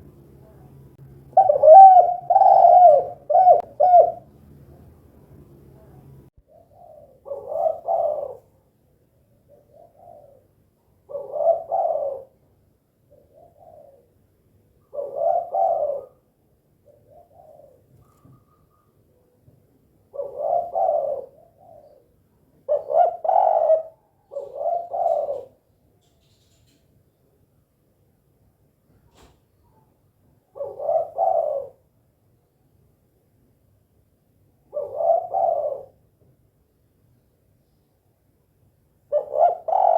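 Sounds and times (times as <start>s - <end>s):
dove cooing: 1.3s - 4.3s, 6.4s - 8.6s, 9.3s - 18.9s, 20.1s - 26.7s, 30.4s - 31.9s, 34.6s - 36.1s, 39.1s - 39.9s.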